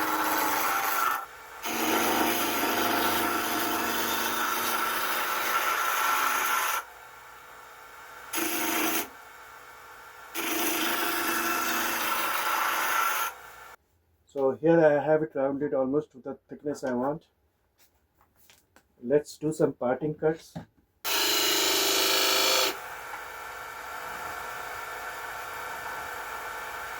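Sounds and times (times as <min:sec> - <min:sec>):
turning tool cutting wood: 0:00.0 - 0:06.9, 0:08.3 - 0:09.2, 0:10.3 - 0:13.8, 0:21.1 - 0:26.9
wood lathe hum: 0:00.0 - 0:13.8, 0:21.1 - 0:26.9.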